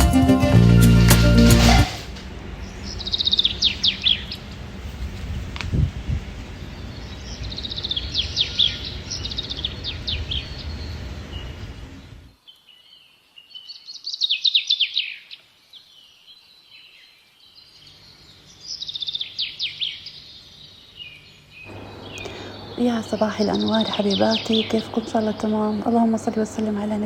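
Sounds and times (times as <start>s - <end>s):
low outdoor rumble: 0.4s - 12.3s, 21.7s - 27.0s
songbird chirping: 6.7s - 27.0s.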